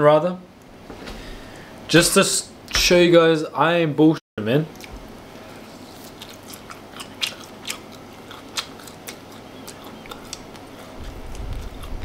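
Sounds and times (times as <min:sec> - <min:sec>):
mouth clicks and smacks while chewing: 0:06.0 - 0:12.0.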